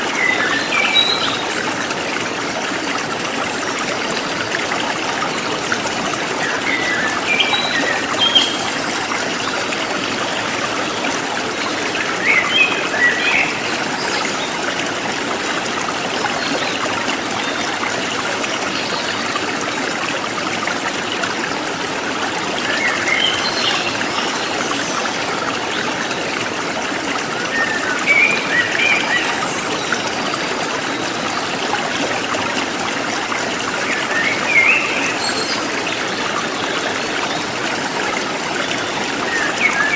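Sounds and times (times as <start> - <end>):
stream running: 0.0 - 39.9.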